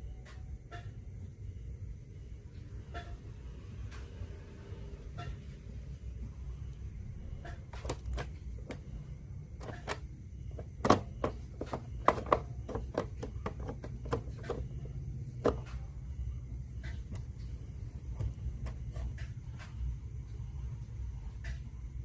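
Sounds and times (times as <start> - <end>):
steady low hum: 0.0 - 22.0
small hard parts clicking: 9.5 - 15.8.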